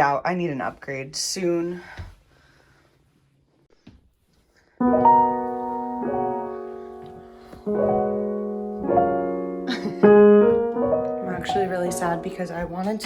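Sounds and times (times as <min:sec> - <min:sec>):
slow piano chords: 0:04.8 - 0:13.0.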